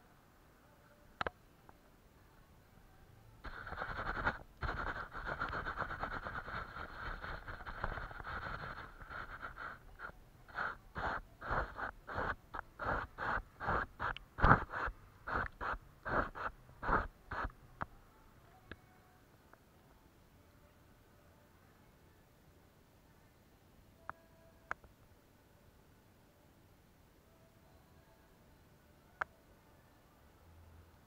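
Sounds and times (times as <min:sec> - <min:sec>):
paintbrush scrubbing on paper: 0:03.4 - 0:17.5.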